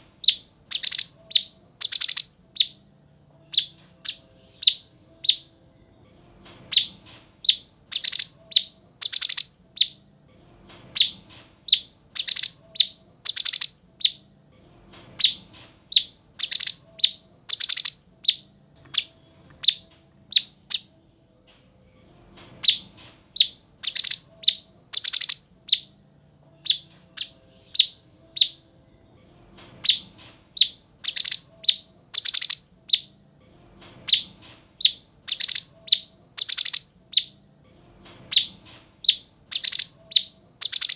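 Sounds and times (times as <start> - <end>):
songbird high notes and trills: 0.7 - 2.8, 7.5 - 9.5, 12.2 - 13.8, 16.4 - 19.1, 23.9 - 25.4, 31.1 - 32.6, 35.3 - 36.9, 39.6 - 40.9.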